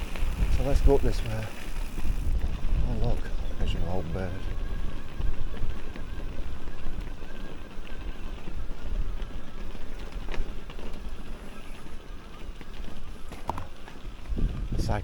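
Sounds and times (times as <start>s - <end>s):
bike rattling on rough trail: 0.0s - 15.0s
wind rumbling on microphone: 0.0s - 15.0s.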